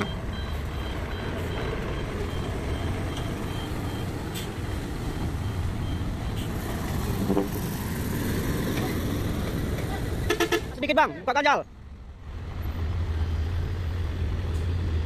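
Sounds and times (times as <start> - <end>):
heavy truck engine running: 0.0 - 10.8.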